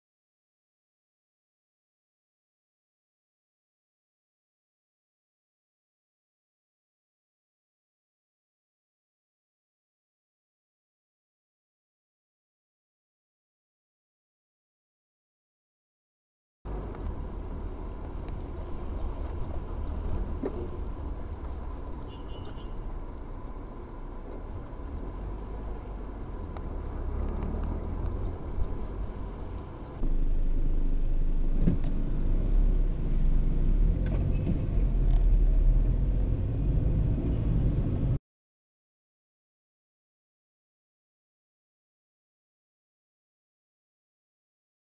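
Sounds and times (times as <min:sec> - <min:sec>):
vehicle road rumble: 0:16.7 - 0:38.2.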